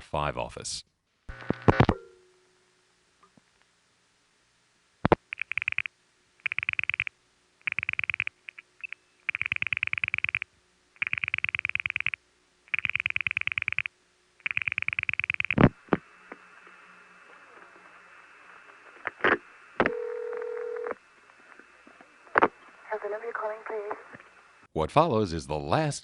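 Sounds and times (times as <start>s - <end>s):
rapid dial pulse clicks: 5.1s - 15.7s
telephone line hiss: 11.0s - 21.7s.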